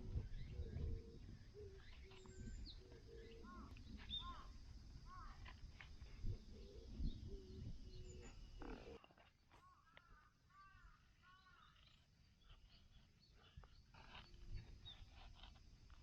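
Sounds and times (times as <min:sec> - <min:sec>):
birds chirping: 0:00.0 - 0:04.5
birds cooing: 0:00.0 - 0:04.5, 0:06.3 - 0:09.0.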